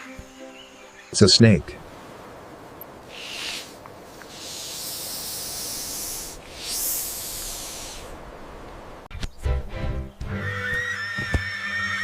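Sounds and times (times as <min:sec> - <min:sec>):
snake hissing: 0:03.0 - 0:08.2.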